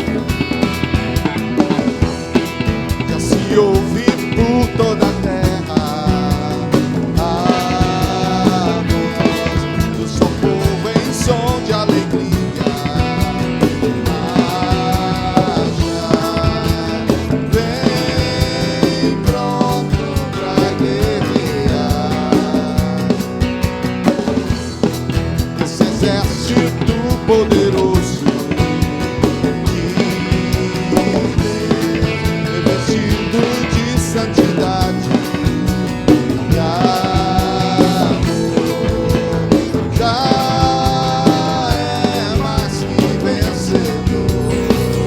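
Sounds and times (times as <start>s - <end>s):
rock band playing: 0.0s - 45.0s
lead melody gliding: 44.3s - 45.0s.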